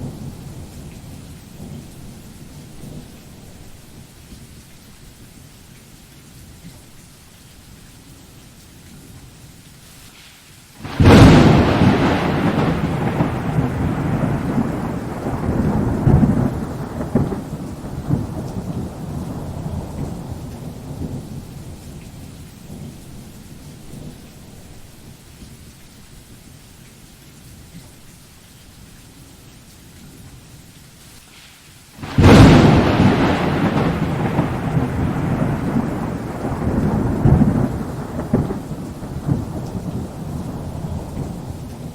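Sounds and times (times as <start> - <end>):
rain falling: 0.0 - 41.9
thunderclap rumble: 10.8 - 23.2, 32.0 - 41.9.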